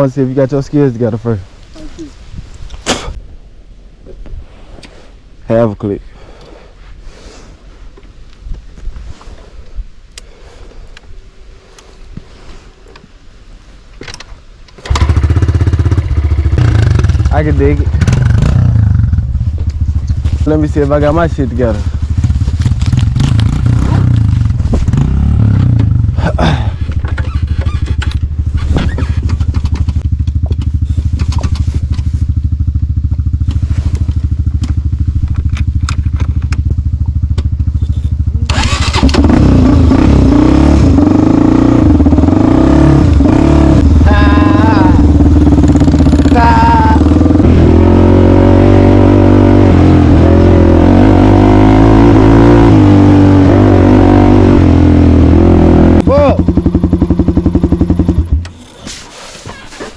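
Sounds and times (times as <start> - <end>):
off-road vehicle engine idling: 25.4 - 48.5, 54.9 - 58.7.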